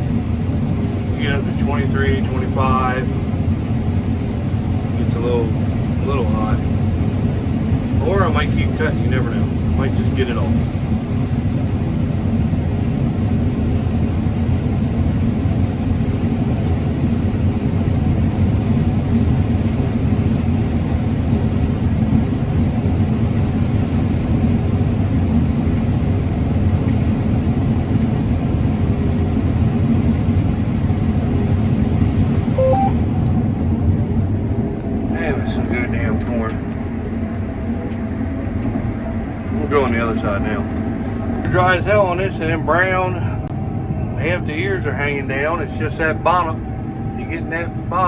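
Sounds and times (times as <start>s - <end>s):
combine harvester droning: 0.0s - 12.0s, 27.0s - 48.0s.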